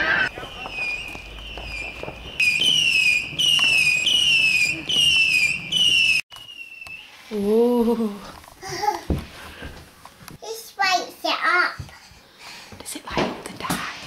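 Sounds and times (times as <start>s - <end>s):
whistling fireworks: 0.0s - 7.5s.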